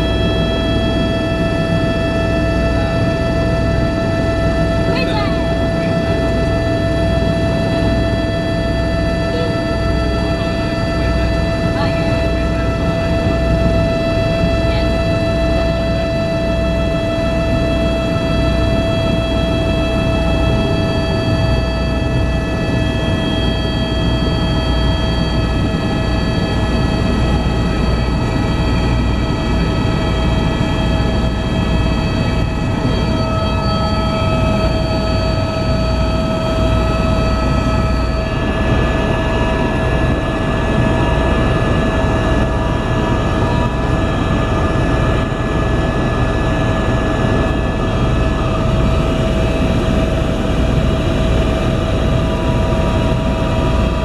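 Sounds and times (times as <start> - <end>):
helicopter rotor and engine drone: 0.0 - 54.0
high whine: 0.0 - 54.0.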